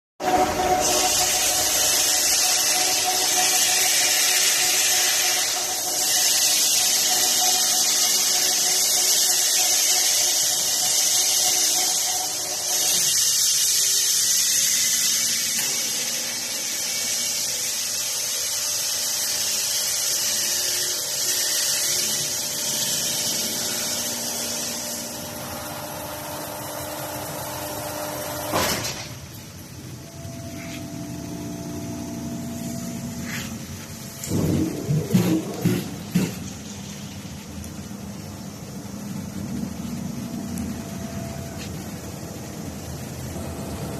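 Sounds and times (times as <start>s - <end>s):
industrial machinery running: 0.2s - 43.9s
sharp knock: 34.5s - 36.4s.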